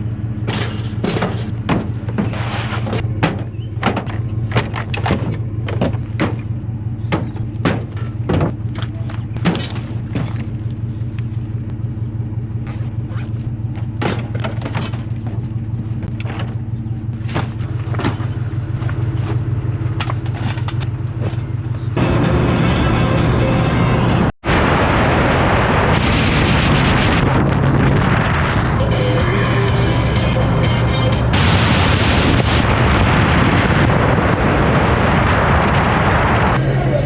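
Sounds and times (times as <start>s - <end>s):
car engine and road hum: 0.0s - 37.0s
knocks and thumps: 0.5s - 10.7s, 13.7s - 16.6s, 17.2s - 19.4s.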